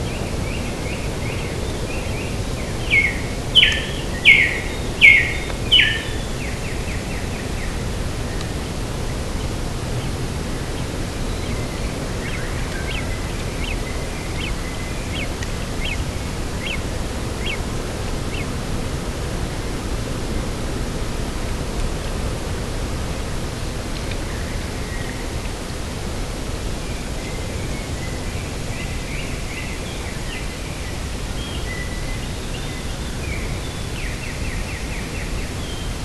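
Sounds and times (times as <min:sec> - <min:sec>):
sharp descending bird calls: 0:02.8 - 0:06.2.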